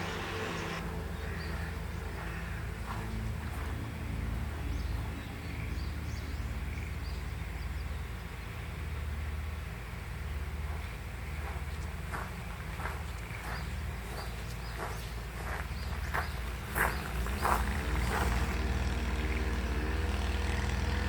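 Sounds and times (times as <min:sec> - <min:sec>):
music: 0:00.0 - 0:07.8
steady low rumble: 0:00.0 - 0:21.0.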